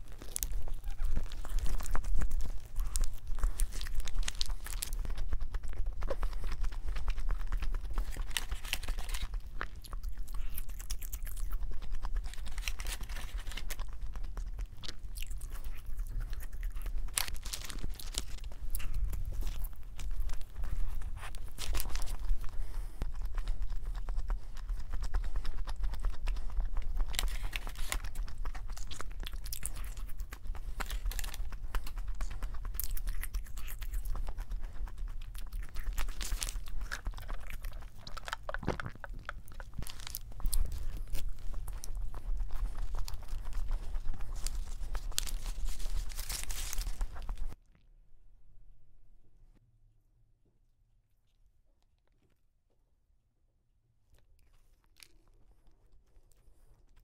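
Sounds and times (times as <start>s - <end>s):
chewing and biting food: 0.0s - 47.8s, 54.2s - 57.0s
paper wrapper rustling: 6.1s - 9.5s, 12.2s - 14.4s, 16.4s - 22.8s, 26.9s - 29.1s, 35.8s - 47.6s.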